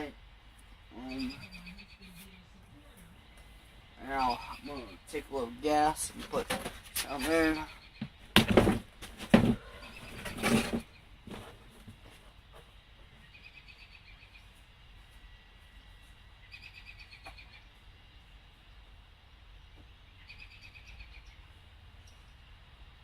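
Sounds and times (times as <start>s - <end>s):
faint bird chirps: 0.0s - 5.4s, 9.6s - 11.2s, 13.0s - 14.6s, 15.7s - 17.9s, 19.5s - 22.5s
loud knocks and handling clatter: 6.2s - 7.1s, 8.0s - 12.1s.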